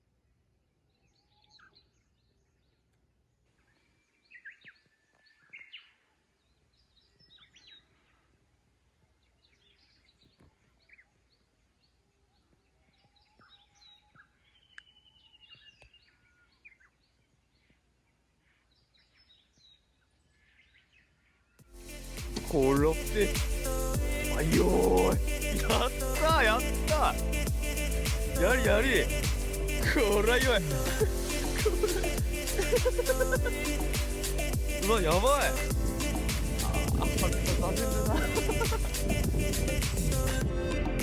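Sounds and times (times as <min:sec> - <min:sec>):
birds chirping and calling: 0:22.9 - 0:40.4.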